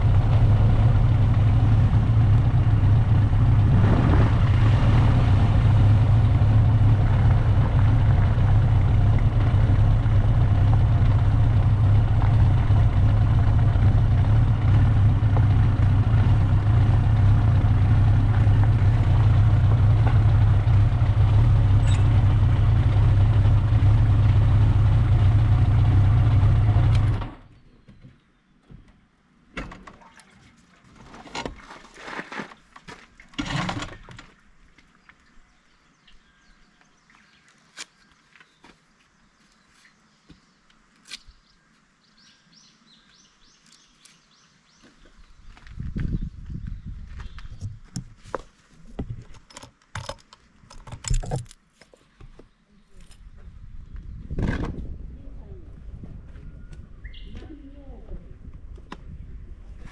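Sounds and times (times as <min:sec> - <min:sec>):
motorcycle engine idling: 0:00.0 - 0:27.4.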